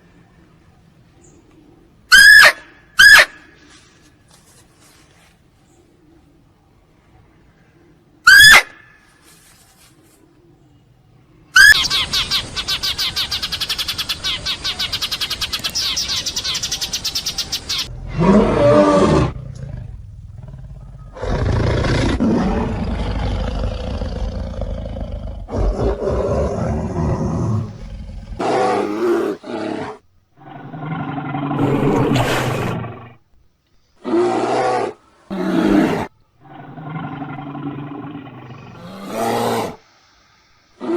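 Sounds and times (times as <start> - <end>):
big cat roaring and growling: 17.9 - 33.2, 34.0 - 39.8.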